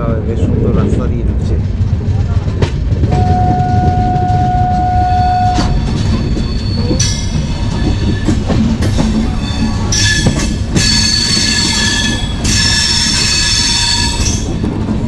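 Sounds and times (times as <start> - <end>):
rail clacks: 0.0 - 15.0
train rumbling: 0.0 - 15.0
train horn: 3.1 - 5.8
wheel squeal: 5.0 - 14.5.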